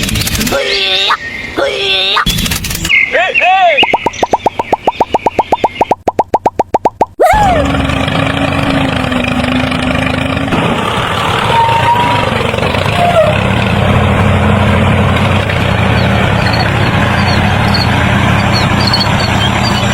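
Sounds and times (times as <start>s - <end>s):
engine humming: 6.7s - 19.9s.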